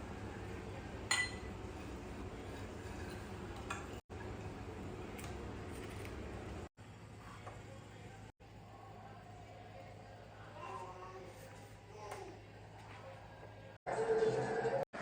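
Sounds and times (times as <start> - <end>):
kitchenware clinking: 1.1 - 1.6, 2.9 - 4.0.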